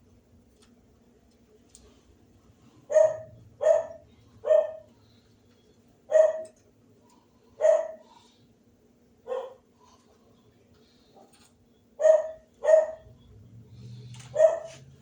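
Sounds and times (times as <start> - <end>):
dog barking: 2.9 - 4.9, 6.1 - 6.6, 7.6 - 8.1, 9.2 - 9.7, 12.0 - 13.1, 14.3 - 14.9.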